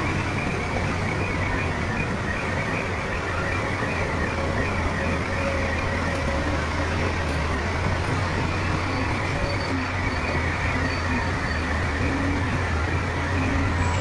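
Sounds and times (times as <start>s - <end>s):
diesel machinery engine drone: 0.0s - 14.0s.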